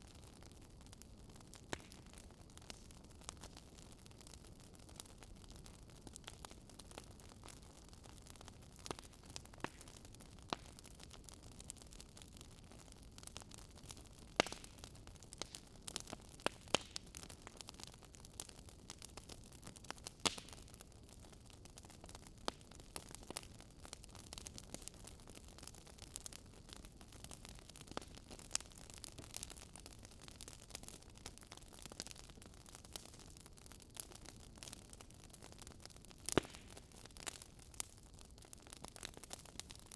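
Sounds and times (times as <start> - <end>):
fireplace crackling: 13.1 - 39.9.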